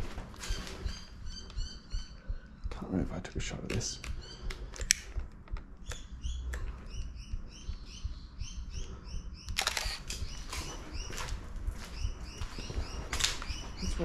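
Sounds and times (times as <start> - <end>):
small bird chirping: 0.4 - 14.0
sharp clicks: 1.4 - 7.8, 9.4 - 10.6.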